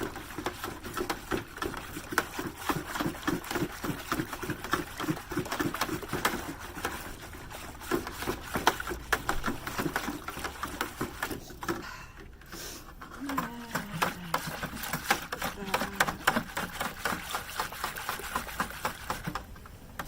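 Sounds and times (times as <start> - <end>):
utensil stirring in a container: 0.0 - 20.0.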